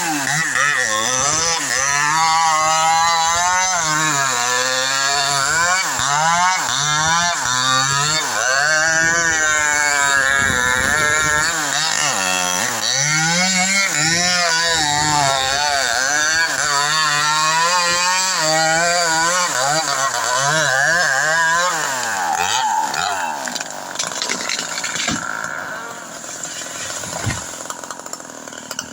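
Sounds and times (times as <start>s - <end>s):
chainsaw cutting into tree: 0.0s - 28.9s.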